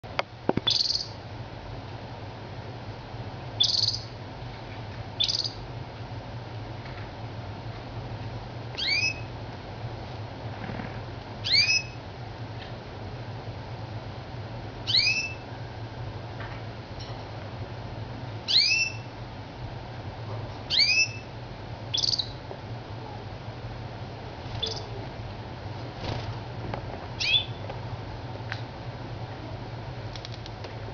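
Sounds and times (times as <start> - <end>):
steady low hum: 0.0 - 30.9
canary chirping calls: 0.7 - 1.2, 3.6 - 4.2, 5.2 - 5.6, 8.8 - 9.3, 11.4 - 12.0, 14.8 - 15.5, 18.5 - 19.1, 20.7 - 21.3, 21.9 - 22.4, 24.6 - 25.0, 27.2 - 27.6
sharp clicks: 30.1 - 30.6.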